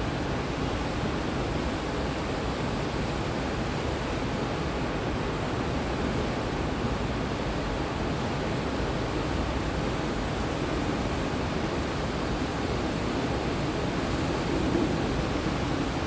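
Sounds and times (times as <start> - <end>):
river rapids roaring: 9.3 - 16.0.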